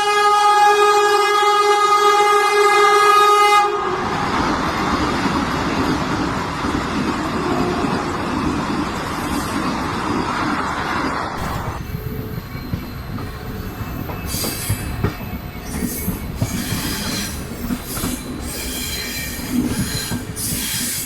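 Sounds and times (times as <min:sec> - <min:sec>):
train horn blast: 0:00.0 - 0:04.2
train coaches rumbling past: 0:02.9 - 0:21.0.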